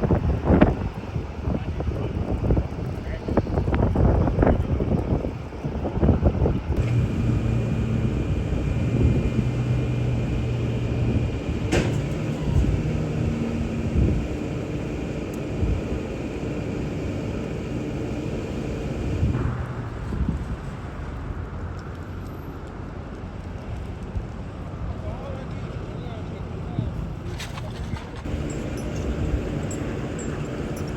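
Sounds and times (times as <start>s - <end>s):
vehicle engine idling: 6.8s - 19.4s, 28.3s - 30.9s
faint high whine: 28.3s - 30.9s.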